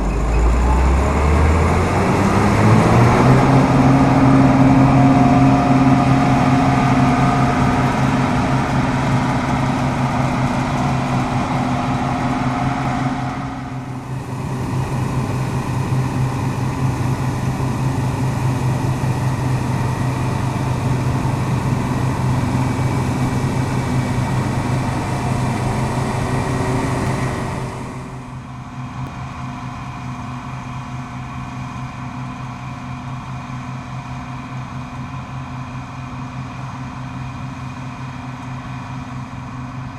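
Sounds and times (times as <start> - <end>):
combine harvester threshing: 0.0 - 28.6.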